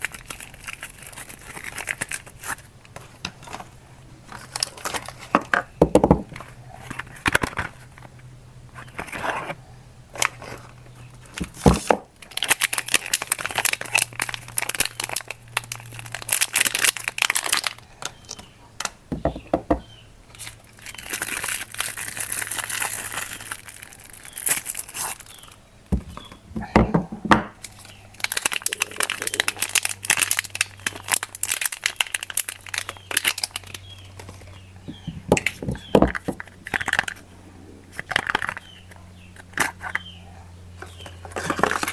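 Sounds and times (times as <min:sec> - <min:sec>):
wrappers crinkling and tearing: 0:00.0 - 0:05.5, 0:10.2 - 0:18.1, 0:20.3 - 0:25.6, 0:27.6 - 0:35.6, 0:40.9 - 0:41.9.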